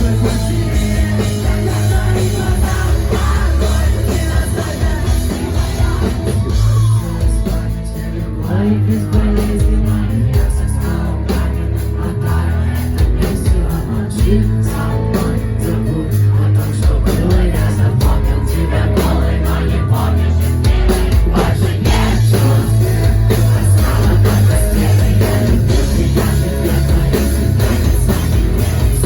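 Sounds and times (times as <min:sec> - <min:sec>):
person singing: 0:00.0 - 0:29.0
rock band playing live: 0:00.0 - 0:29.0.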